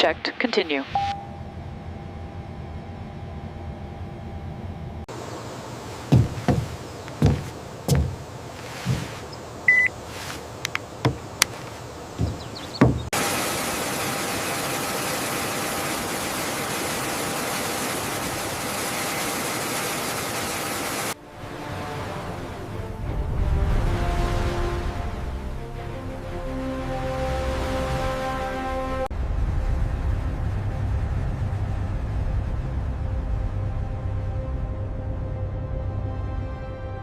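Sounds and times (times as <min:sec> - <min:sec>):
short high beep: 0:01.0 - 0:01.6
sharp knocks and clanks: 0:06.1 - 0:09.4, 0:10.7 - 0:13.2.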